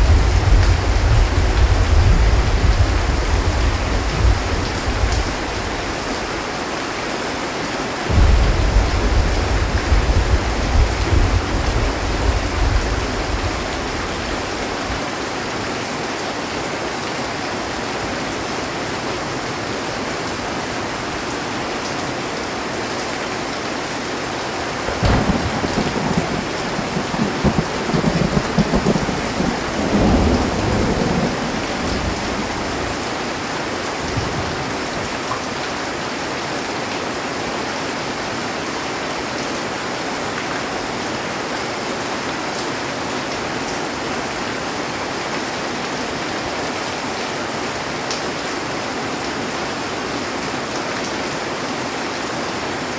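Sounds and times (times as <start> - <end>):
thunder: 0.0 - 6.0, 8.1 - 15.0, 24.8 - 34.9
heavy rain on a metal roof: 0.0 - 52.9.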